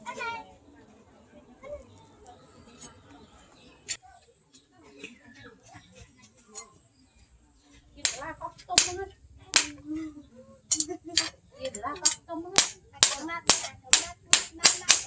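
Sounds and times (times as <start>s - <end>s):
hammer striking steel on anvil: 8.0s - 9.0s, 9.6s - 9.8s, 10.7s - 15.0s.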